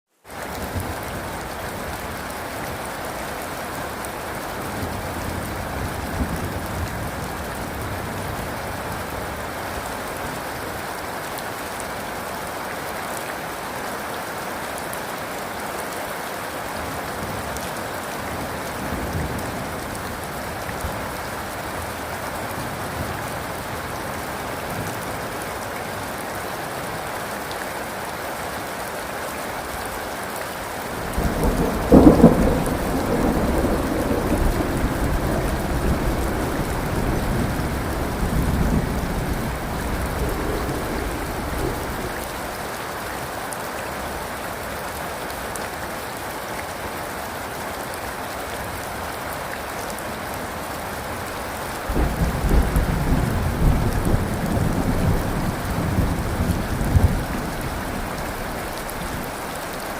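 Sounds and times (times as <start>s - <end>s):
steady rain falling: 0.1s - 59.9s.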